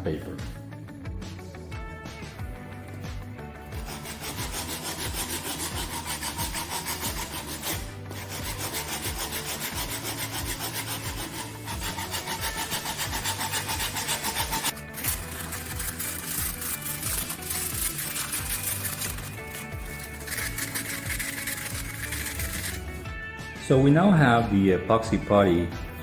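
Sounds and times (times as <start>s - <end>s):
hand sanding epoxy: 2.9s - 23.1s.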